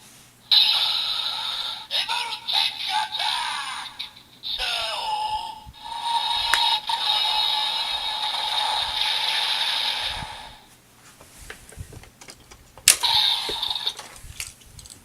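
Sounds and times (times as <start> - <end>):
toy electronic sound: 0.5 - 1.8, 5.8 - 10.5, 13.0 - 14.0
plastic clicks and rattles: 11.7 - 15.0.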